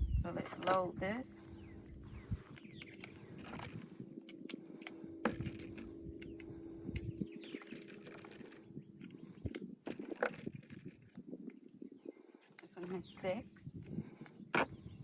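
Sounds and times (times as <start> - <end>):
birds chirping faintly: 0.0 - 9.5, 11.6 - 15.0
revolver cartridges clicking and rattling: 2.6 - 11.2, 12.8 - 13.4.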